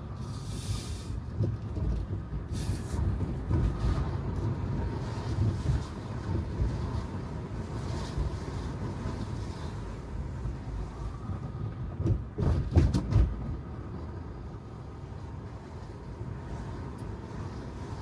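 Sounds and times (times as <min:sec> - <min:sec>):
car road rumble on wet pavement: 0:00.0 - 0:18.0
short hiss: 0:00.2 - 0:01.2, 0:02.5 - 0:03.0.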